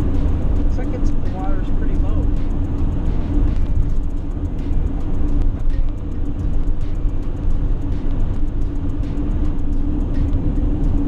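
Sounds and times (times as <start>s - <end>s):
engine drone: 0.0s - 11.0s
road rumble: 0.0s - 11.0s
small ticks: 2.6s - 11.0s.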